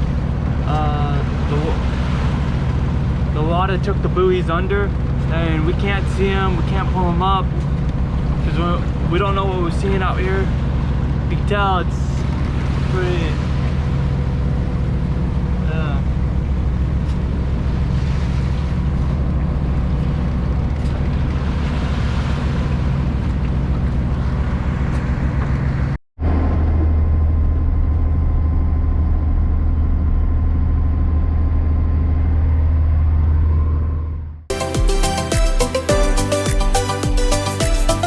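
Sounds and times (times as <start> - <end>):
wind: 0.0 - 34.5
motorboat engine running: 0.0 - 38.0
water noise: 0.0 - 38.0
music: 34.5 - 38.0.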